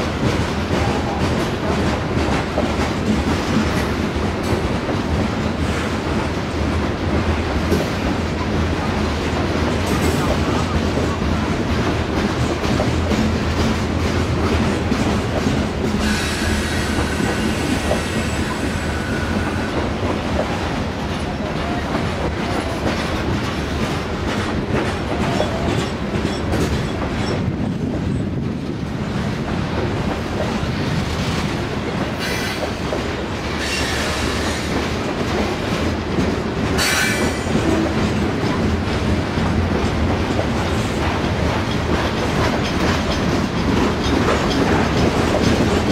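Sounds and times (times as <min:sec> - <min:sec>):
freight train rumbling past: 0:00.0 - 0:45.9.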